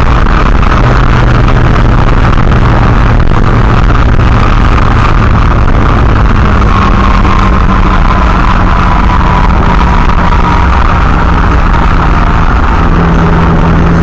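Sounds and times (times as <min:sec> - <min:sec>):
car engine and road noise: 0:00.0 - 0:14.0
faint whine: 0:00.0 - 0:14.0.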